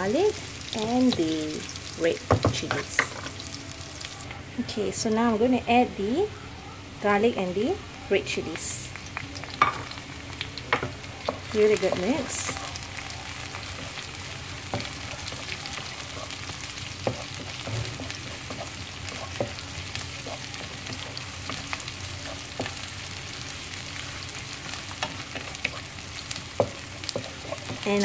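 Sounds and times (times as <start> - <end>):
vegetables sizzling in hot oil: 0.0 - 6.3, 7.0 - 28.0
wooden spatula scraping wok: 13.6 - 28.0.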